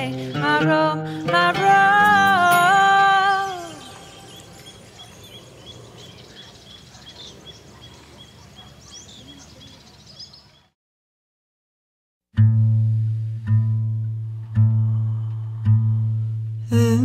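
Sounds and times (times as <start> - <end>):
birds chirping: 0.0 - 10.8.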